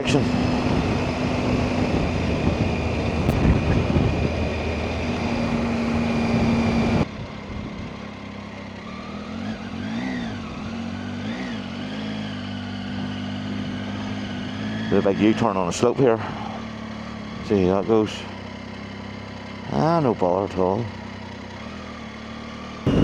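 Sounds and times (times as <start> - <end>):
heavy wind rush: 0.0 - 7.0
motorcycle engine running: 0.0 - 23.0.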